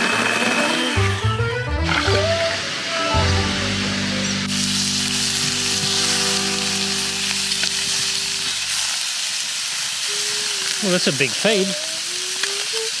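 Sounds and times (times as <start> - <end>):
background music: 0.2 - 8.8
meat sizzling on hotplate: 4.4 - 13.0.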